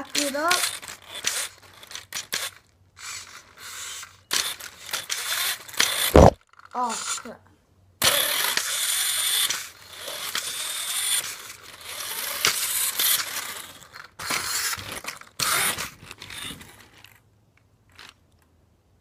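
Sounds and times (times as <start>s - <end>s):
rc car motor whirring: 0.0s - 7.3s, 8.0s - 17.2s
high whine: 6.1s - 6.4s.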